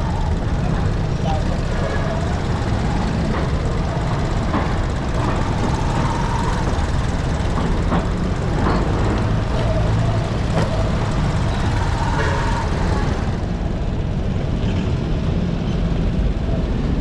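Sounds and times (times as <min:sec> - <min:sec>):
motorcycle engine rumbling: 0:00.0 - 0:15.8
road noise: 0:00.0 - 0:17.0.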